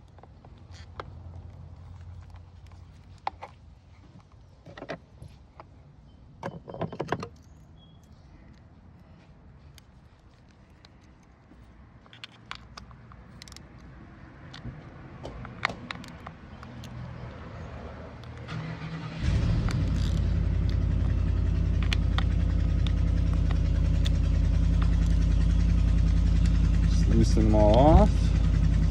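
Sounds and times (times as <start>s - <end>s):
engine starting and running: 14.4s - 28.9s.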